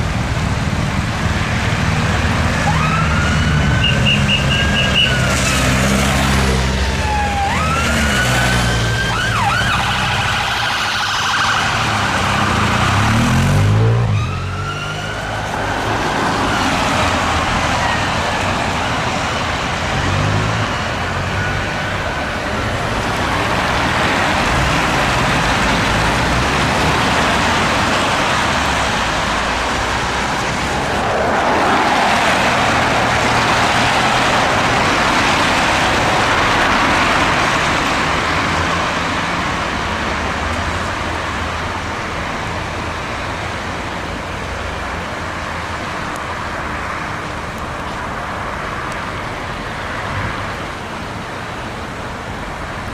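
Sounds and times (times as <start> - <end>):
road traffic passing: 0.0 - 52.9
siren gliding up and down: 2.6 - 5.3, 6.5 - 16.8.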